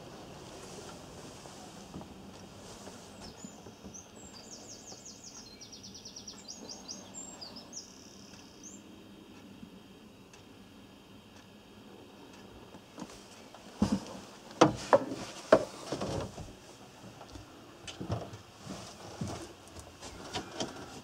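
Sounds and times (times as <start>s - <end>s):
low steady hiss: 0.0s - 21.0s
songbird trilling: 3.2s - 8.9s.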